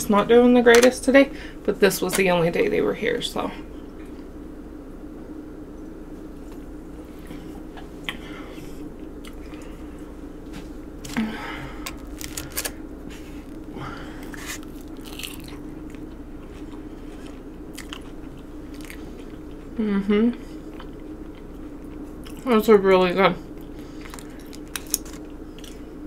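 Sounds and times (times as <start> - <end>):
steady low hum: 0.0 - 26.0
plastic fork crackling in foil boxes: 11.9 - 12.8, 14.3 - 15.5, 24.1 - 25.3
chewing and biting: 14.2 - 19.8, 24.0 - 25.8.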